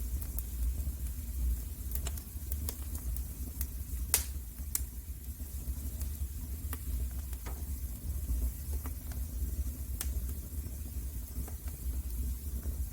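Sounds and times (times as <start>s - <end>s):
wood fire crackling: 0.0s - 12.9s
sharp fire pops: 1.8s - 5.0s, 6.0s - 7.8s, 10.0s - 10.3s.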